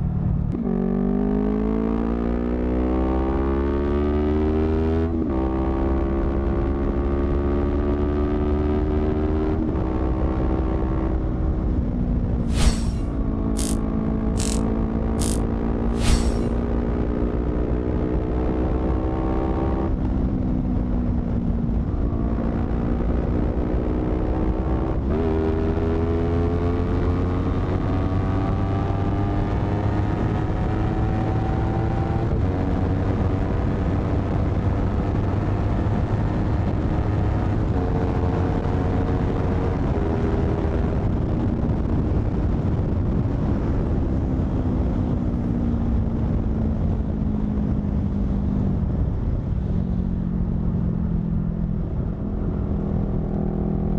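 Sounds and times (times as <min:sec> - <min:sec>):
motorcycle engine revving through gears: 0:00.5 - 0:11.8, 0:12.4 - 0:41.4.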